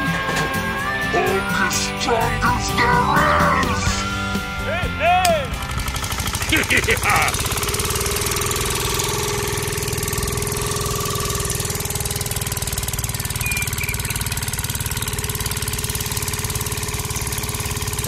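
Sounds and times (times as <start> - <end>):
small engine chugging: 0.0 - 18.0.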